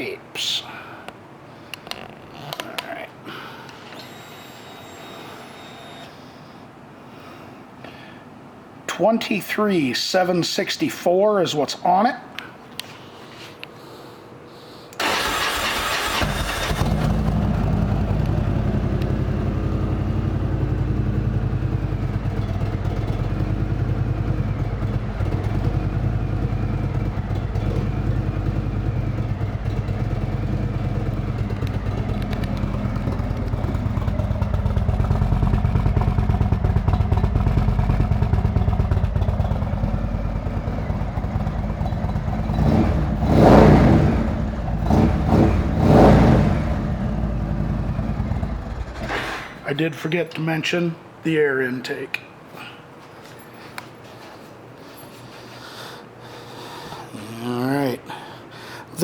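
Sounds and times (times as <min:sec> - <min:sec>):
motorcycle engine idling: 0:15.0 - 0:49.2
motorcycle engine revving: 0:15.0 - 0:49.5.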